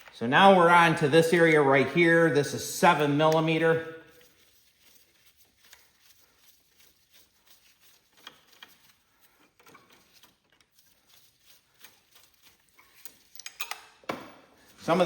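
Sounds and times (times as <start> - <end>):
wrench clicking on bolt: 13.3 - 13.9.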